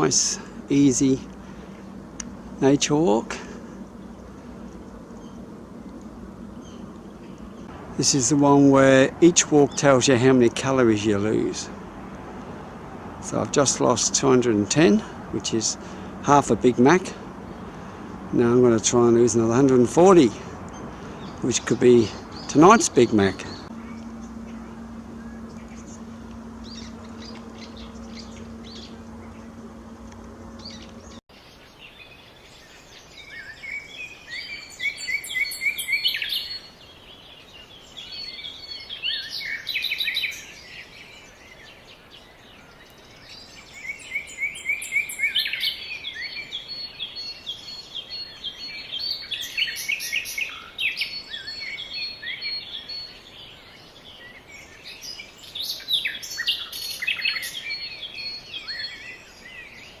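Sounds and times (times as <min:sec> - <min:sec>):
steady low hum: 0:00.0 - 0:31.2
songbirds chirping and trilling: 0:00.0 - 1:00.0.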